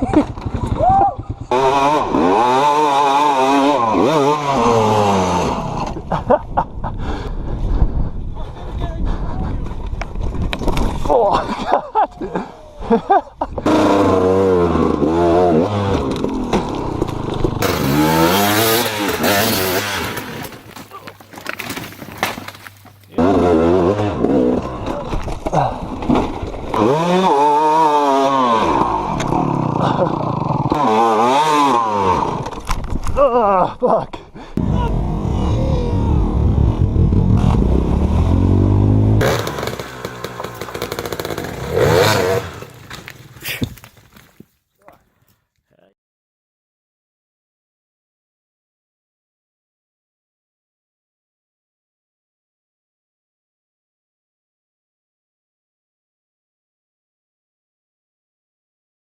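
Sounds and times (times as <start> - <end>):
off-road vehicle engine revving: 1.4 - 6.0, 13.6 - 20.4, 23.1 - 32.5, 34.6 - 42.9
vehicle engine revving: 34.6 - 43.1.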